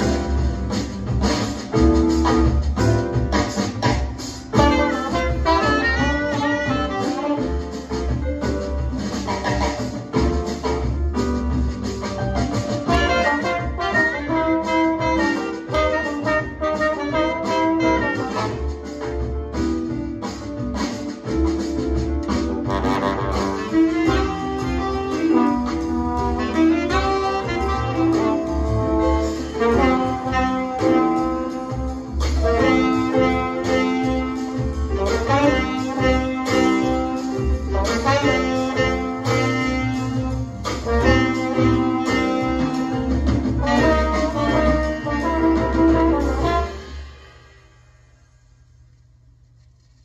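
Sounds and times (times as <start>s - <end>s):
steady bass line: 0.0s - 47.1s
saxophone playing: 4.5s - 8.1s, 12.9s - 18.8s, 22.6s - 47.1s.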